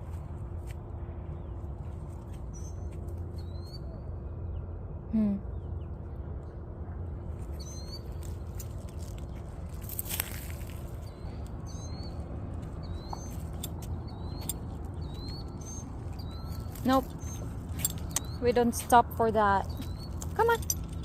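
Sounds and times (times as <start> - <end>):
bird chirping: 11.0 - 21.0.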